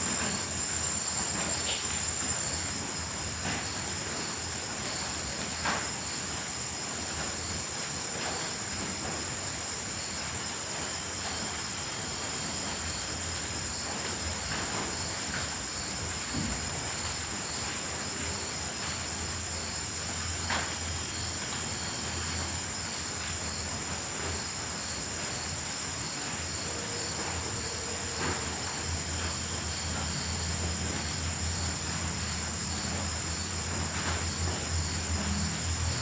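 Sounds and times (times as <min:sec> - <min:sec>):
insect chirping: 0:00.0 - 0:08.9, 0:10.0 - 0:36.0
crickets trilling: 0:00.0 - 0:36.0
steady hiss: 0:00.0 - 0:36.0.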